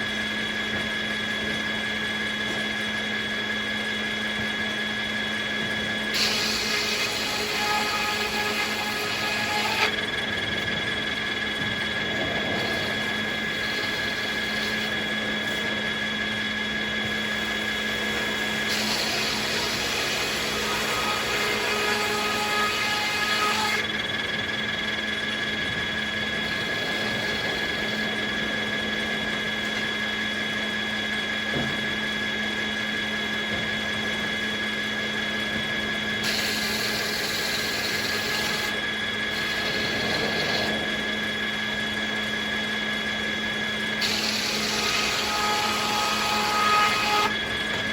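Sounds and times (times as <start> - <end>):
circular saw humming and whining: 0.0 - 47.9.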